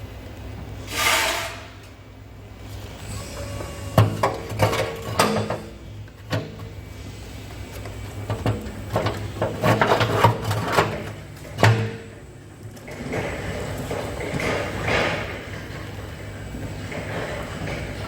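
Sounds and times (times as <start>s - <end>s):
hard objects knocking and clattering: 12.8s - 18.0s.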